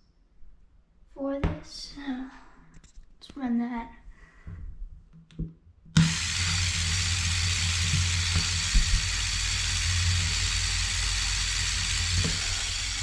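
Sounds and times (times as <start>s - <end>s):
toy motor humming: 6.0s - 13.0s.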